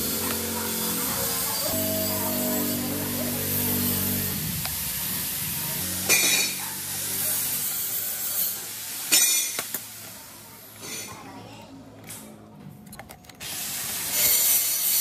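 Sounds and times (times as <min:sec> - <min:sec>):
handling noise and clicks: 0:12.0 - 0:13.5.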